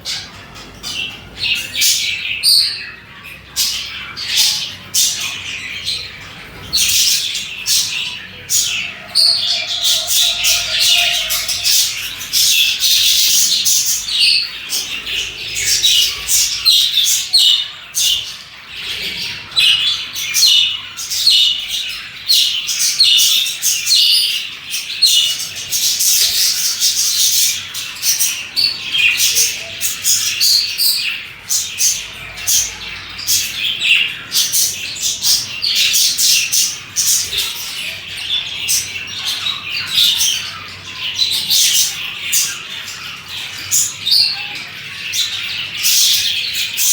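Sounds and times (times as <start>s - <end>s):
budgerigars chirping and chattering: 0.0s - 46.9s.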